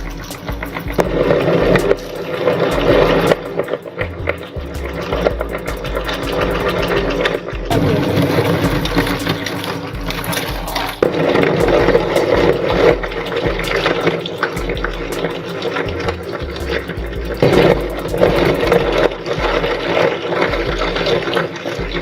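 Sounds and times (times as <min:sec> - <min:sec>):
background music: 0:00.0 - 0:22.0.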